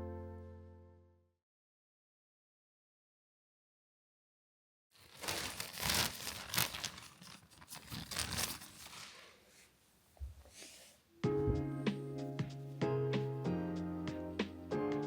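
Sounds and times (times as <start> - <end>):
rustling and crinkling: 5.0 - 9.6.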